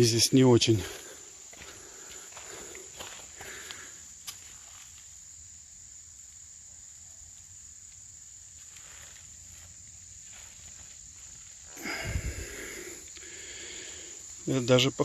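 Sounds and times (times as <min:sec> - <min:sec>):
high-pitched insect chorus: 0:00.0 - 0:15.0
footsteps on forest floor: 0:00.7 - 0:05.1, 0:08.5 - 0:13.8.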